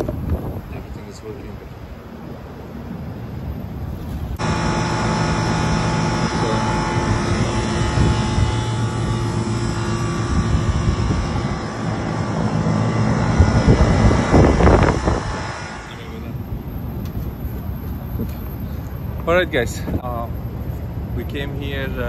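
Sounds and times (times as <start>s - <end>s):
loud mechanical drone: 4.4s - 19.3s.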